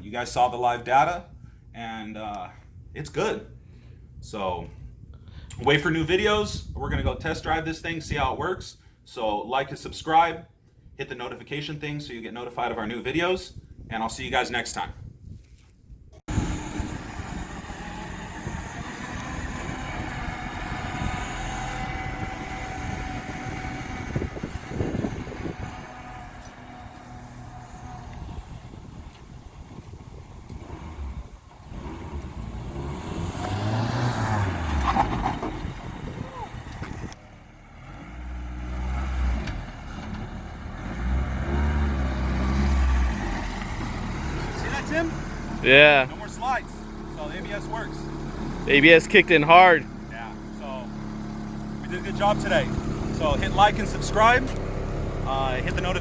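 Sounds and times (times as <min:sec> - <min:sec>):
car engine and road noise: 0:16.2 - 0:56.0
car jolts: 0:33.4 - 0:37.1.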